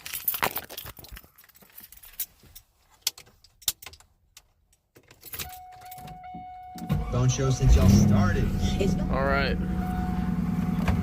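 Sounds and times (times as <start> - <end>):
keys jangling: 0.0 - 4.1
steady electronic tone: 7.6 - 10.8.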